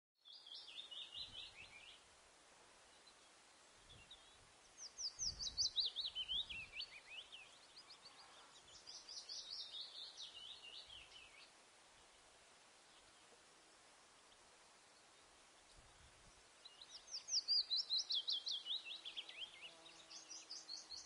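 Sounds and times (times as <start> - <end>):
bird chirping: 0.2 - 2.0, 2.9 - 21.0.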